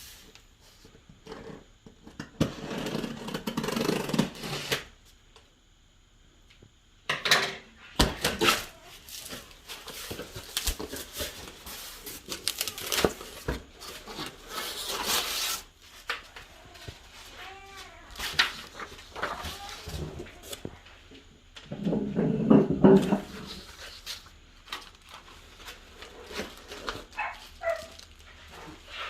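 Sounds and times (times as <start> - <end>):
rustling: 23.1 - 29.0.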